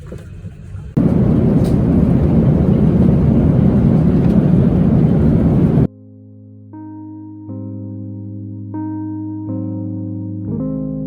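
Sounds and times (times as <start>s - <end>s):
jet airliner cabin rumble: 0.1s - 5.9s.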